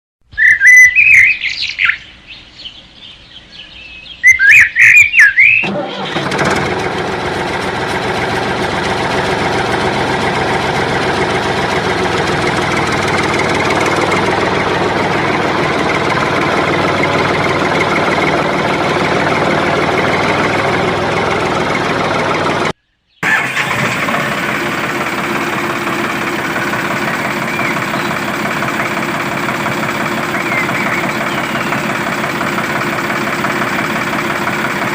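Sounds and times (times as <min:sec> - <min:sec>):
tractor engine running: 0:05.6 - 0:34.9
high whistling chirps: 0:27.5 - 0:28.2, 0:30.3 - 0:31.8.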